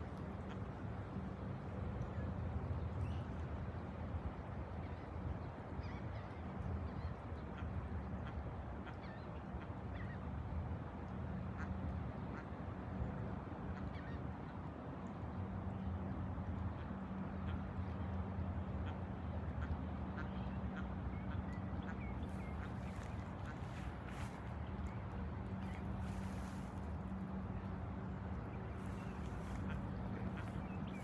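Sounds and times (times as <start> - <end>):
waterbirds calling: 16.6 - 31.0
steady low rumble: 21.2 - 31.0.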